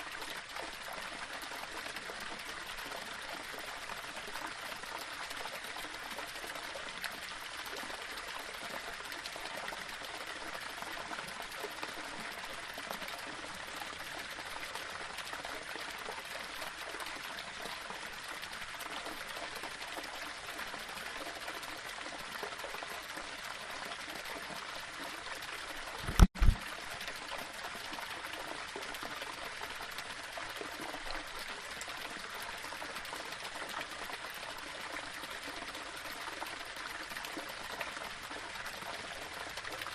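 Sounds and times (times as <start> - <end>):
waterfall over rocks: 0.0 - 39.9
loud low thump: 26.0 - 26.6.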